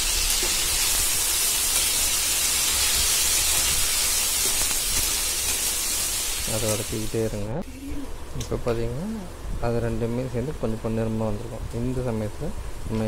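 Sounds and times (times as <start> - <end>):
onions sizzling in hot oil: 0.0 - 7.5.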